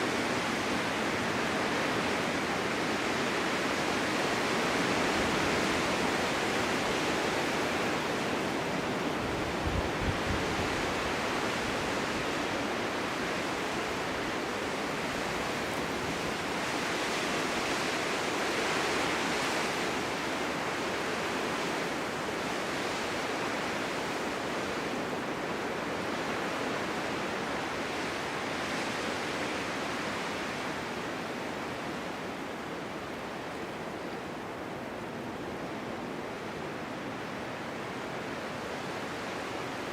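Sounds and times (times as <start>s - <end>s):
snowstorm wind blowing: 0.0s - 39.9s
wind buffeting microphone: 0.1s - 16.8s.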